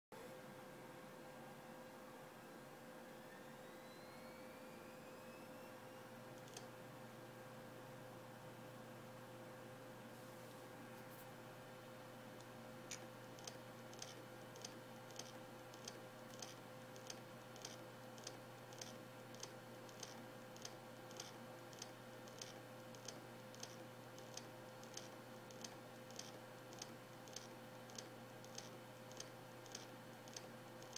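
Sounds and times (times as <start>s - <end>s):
faint steady hum: 0.2s - 30.9s
hard drive clicking: 12.4s - 30.9s.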